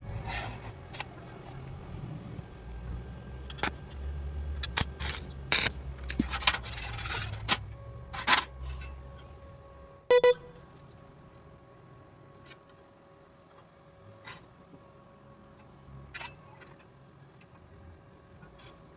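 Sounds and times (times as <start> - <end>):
steel clinking and scraping: 4.6 - 7.6.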